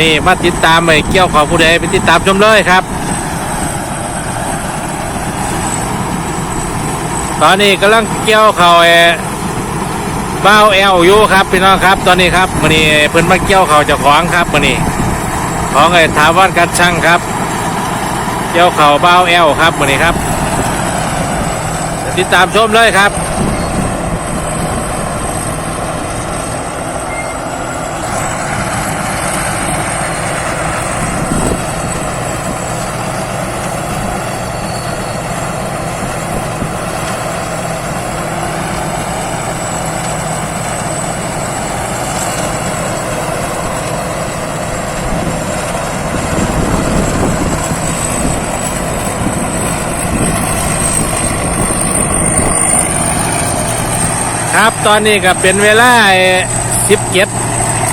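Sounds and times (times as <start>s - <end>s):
combine harvester engine drone: 0.0s - 57.9s
high-pitched whine: 18.5s - 57.9s.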